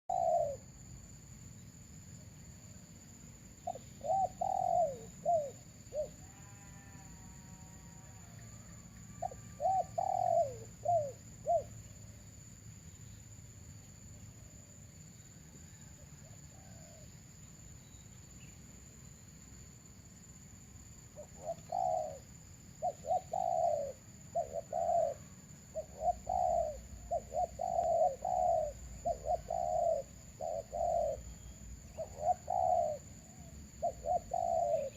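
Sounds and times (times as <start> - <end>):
doves cooing: 0.1 - 0.6, 3.7 - 6.7, 9.2 - 11.7, 21.2 - 31.3, 32.0 - 34.9.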